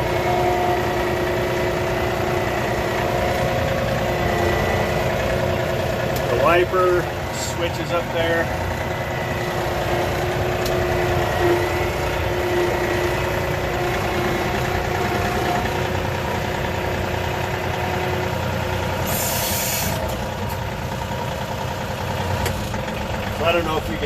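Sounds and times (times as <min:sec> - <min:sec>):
tractor diesel engine running: 0:00.0 - 0:24.0
brief hiss: 0:19.1 - 0:20.1.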